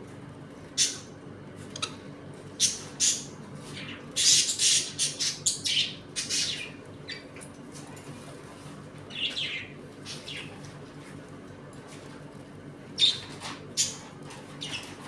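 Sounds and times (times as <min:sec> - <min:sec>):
budgerigars chirping: 0:02.6 - 0:07.2.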